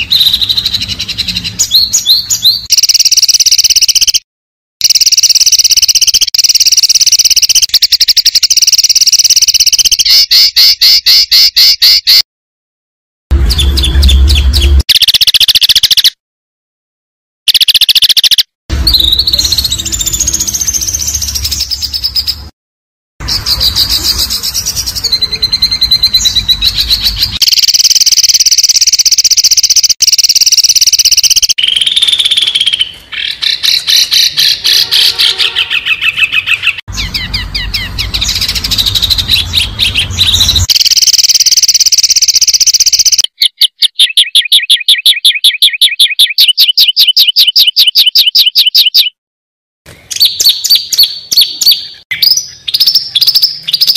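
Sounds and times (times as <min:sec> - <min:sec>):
songbird trills and chatters: 0:30.4 - 0:34.8, 0:41.5 - 0:49.1, 0:50.1 - 0:53.9.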